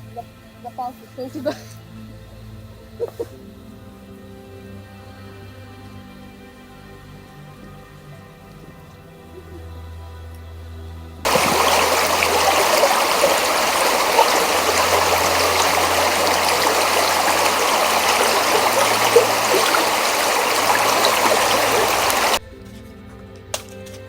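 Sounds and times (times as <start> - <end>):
river water rushing: 11.3 - 22.4.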